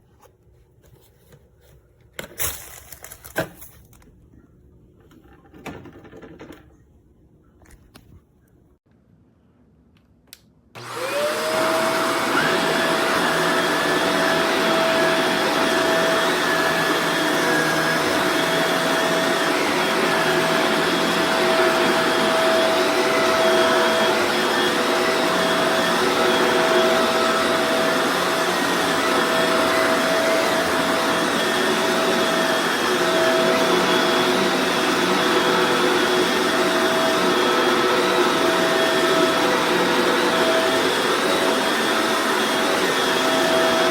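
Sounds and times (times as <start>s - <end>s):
vacuum cleaner motor: 10.8s - 43.9s.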